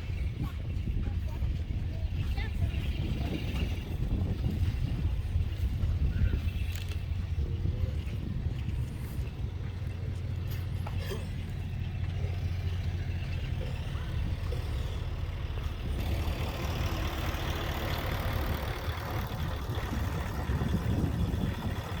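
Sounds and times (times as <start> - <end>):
low engine rumble: 0.0 - 22.0.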